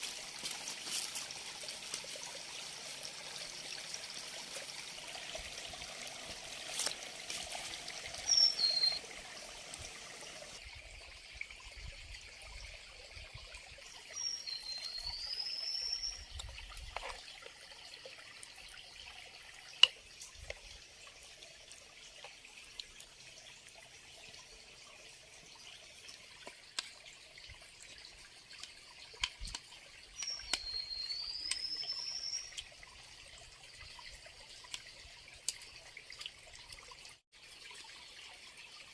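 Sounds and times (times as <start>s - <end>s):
water trickling: 0.0s - 38.9s
bird calling: 8.3s - 9.0s.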